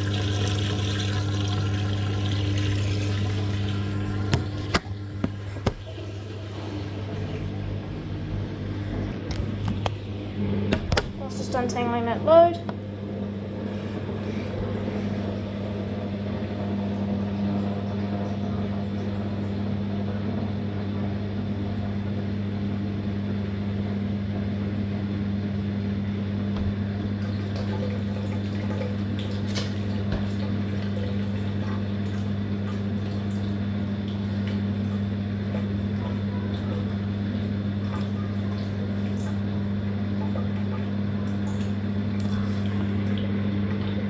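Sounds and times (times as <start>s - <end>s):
running water: 0.0s - 7.8s
washing machine hum: 0.0s - 44.0s.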